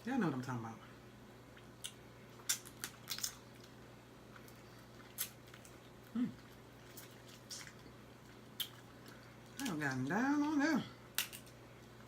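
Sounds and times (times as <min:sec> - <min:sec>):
wet smacking eating clicks: 0:01.5 - 0:10.0
person humming mm: 0:06.1 - 0:06.4.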